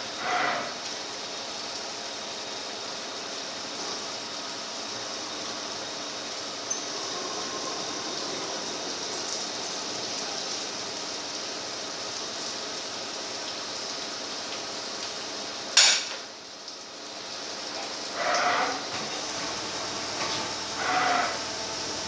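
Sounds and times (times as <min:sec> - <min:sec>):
lathe running with hissing: 0:00.0 - 0:00.9, 0:03.6 - 0:11.9, 0:17.6 - 0:22.0.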